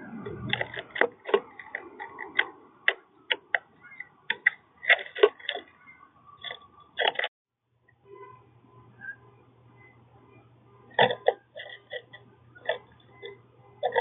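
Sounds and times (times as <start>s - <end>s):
birds tapping at feeder: 0.3s - 7.3s.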